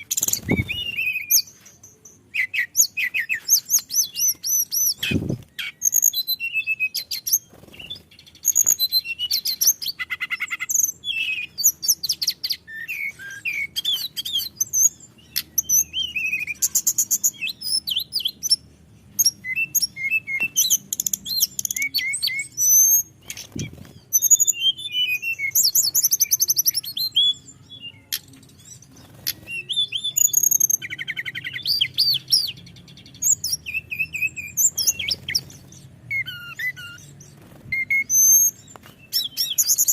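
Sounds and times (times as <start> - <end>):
bird singing trills: 0.0 - 39.9.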